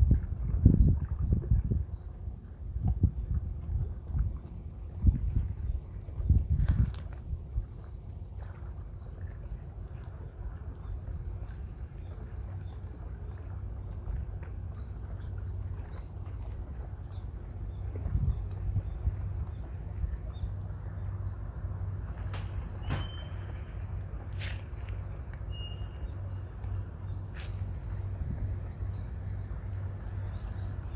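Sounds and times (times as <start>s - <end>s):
insects droning: 0.0s - 30.9s
brief knocks: 22.2s - 23.5s.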